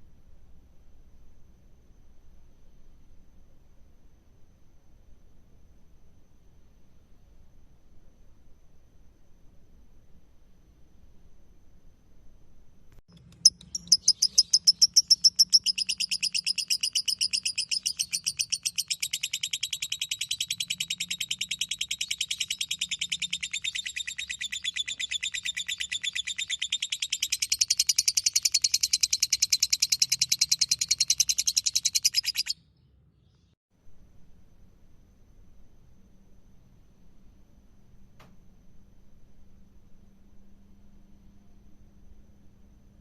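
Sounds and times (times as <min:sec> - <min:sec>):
lovebird chattering trill: 0:13.1 - 0:32.6.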